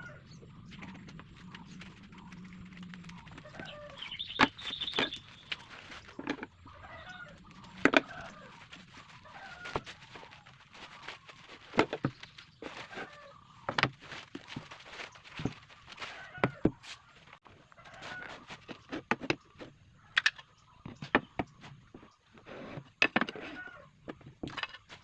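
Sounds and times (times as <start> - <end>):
short bird calls: 0.0 - 6.1.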